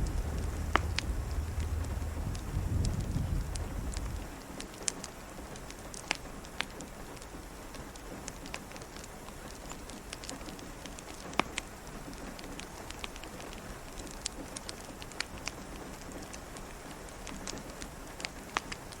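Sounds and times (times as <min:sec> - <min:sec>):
sharp taps and pops: 0:00.0 - 0:04.2
rain falling: 0:00.0 - 0:19.0.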